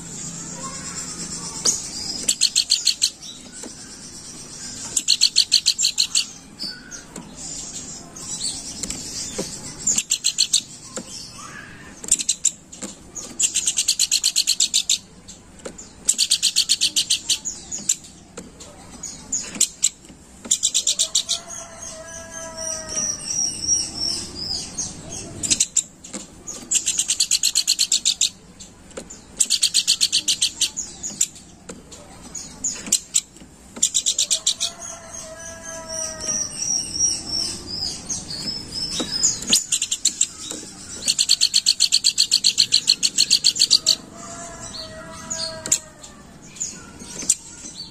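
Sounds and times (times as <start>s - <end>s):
bird chattering trill: 0.2s - 12.6s, 16.1s - 17.8s, 29.3s - 31.2s, 33.9s - 45.8s.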